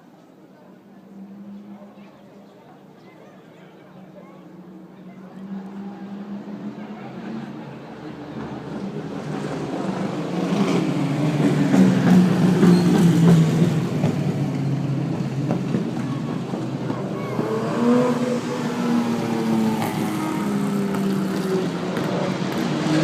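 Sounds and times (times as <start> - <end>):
car engines running: 5.6 - 23.0.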